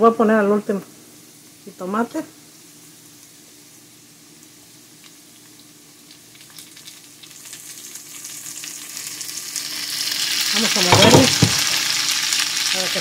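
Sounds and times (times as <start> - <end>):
vegetables sizzling in oil: 0.0 - 13.0
small crackles: 2.5 - 10.6.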